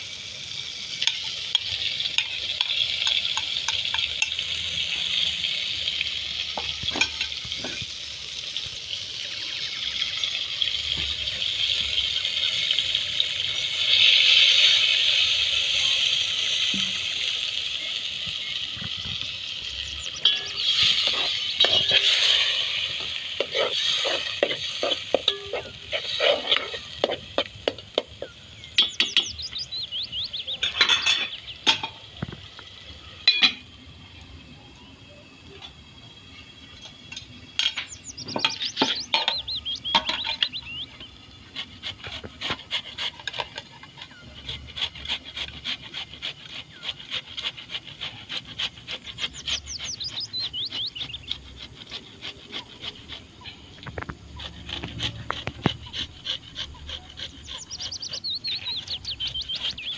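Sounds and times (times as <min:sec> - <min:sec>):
utensils knocking against a pot: 0:01.0 - 0:04.6, 0:06.5 - 0:08.0, 0:16.7 - 0:17.1, 0:20.2 - 0:29.5, 0:30.5 - 0:32.5, 0:33.2 - 0:33.8, 0:36.8 - 0:41.1.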